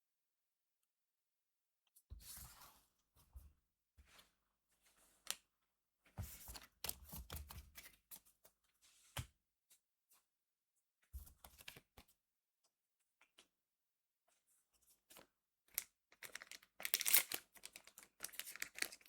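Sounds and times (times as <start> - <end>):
trading cards rustling: 16.2 - 19.0.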